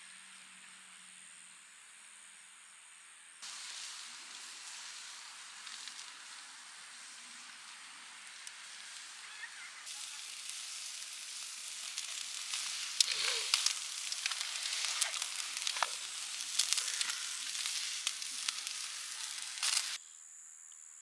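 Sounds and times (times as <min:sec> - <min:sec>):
meat sizzling on a grill: 0:03.4 - 0:20.0.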